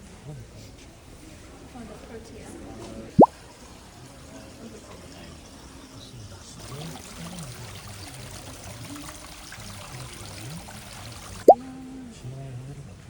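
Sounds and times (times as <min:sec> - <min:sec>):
faint voices murmuring: 0:03.8 - 0:13.0
water running and splashing: 0:06.6 - 0:11.6.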